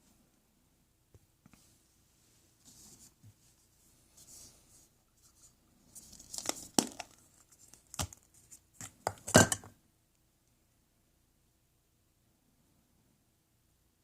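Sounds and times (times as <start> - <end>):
packaging being torn and crinkled: 6.1 - 8.3.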